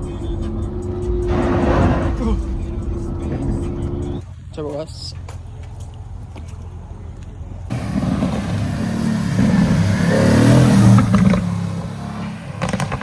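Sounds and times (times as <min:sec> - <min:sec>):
sports car accelerating past: 0:00.0 - 0:04.2, 0:07.7 - 0:13.0.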